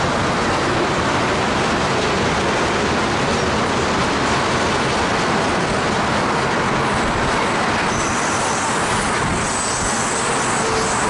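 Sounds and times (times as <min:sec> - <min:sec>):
steel wheels rolling on rails: 0:00.0 - 0:11.0.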